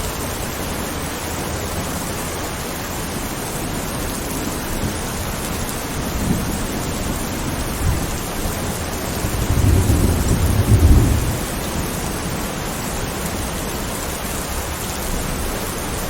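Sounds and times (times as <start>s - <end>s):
heavy rain: 0.0s - 16.0s
thunder rumbling: 3.7s - 13.3s.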